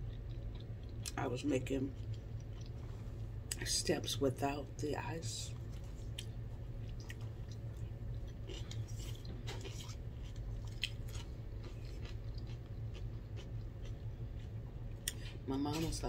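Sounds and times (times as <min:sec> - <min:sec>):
person chewing salad: 0:00.0 - 0:03.6, 0:05.5 - 0:16.0
steady low hum: 0:00.0 - 0:16.0.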